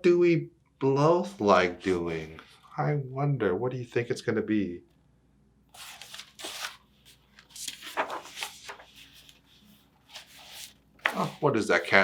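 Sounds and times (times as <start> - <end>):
book pages rustling and turning: 5.7 - 12.0.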